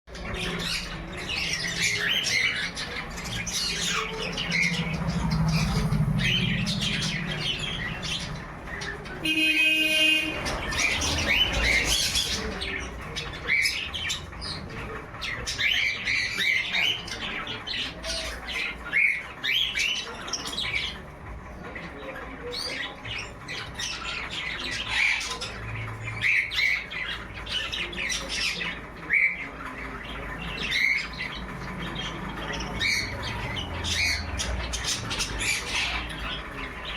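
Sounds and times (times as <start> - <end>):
parrots squawking and chirping: 0.1 - 36.9.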